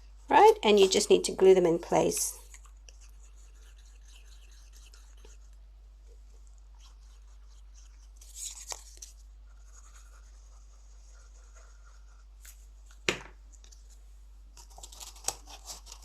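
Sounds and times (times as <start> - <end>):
paper rustling and scraping: 7.8 - 10.4, 14.6 - 16.0.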